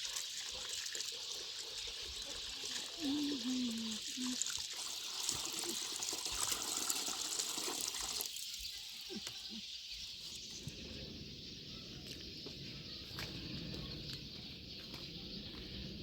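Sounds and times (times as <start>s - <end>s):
water trickling: 0.0s - 9.4s.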